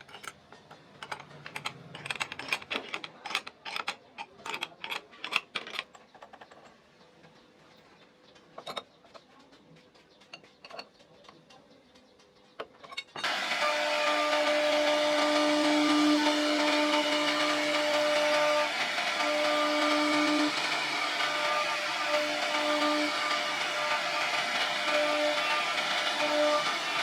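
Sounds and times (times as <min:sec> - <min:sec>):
router spindle whine: 0:13.2 - 0:27.0.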